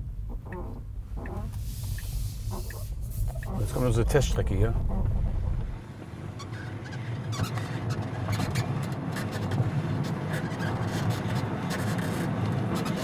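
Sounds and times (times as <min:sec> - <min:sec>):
suspension creaking and squeaking: 0:00.0 - 0:05.8
road rumble inside car: 0:00.0 - 0:13.0.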